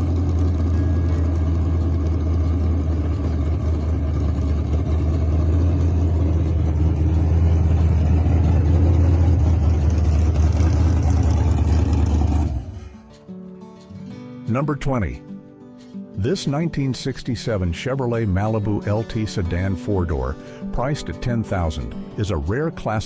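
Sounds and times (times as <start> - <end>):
car engine running: 0.0 - 13.1.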